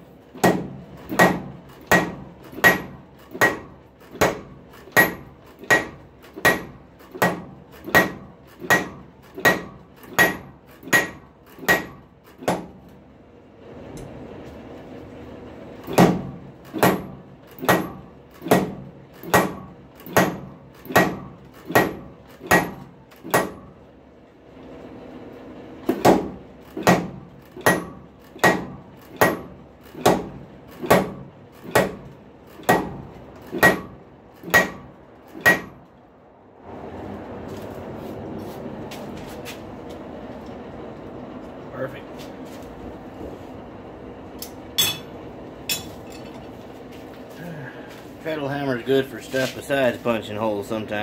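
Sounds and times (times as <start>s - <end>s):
steady hum: 0.0s - 51.0s
hammer blows ringing on metal: 0.4s - 12.8s, 15.9s - 23.7s, 25.9s - 32.0s, 32.7s - 35.8s, 44.8s - 45.1s.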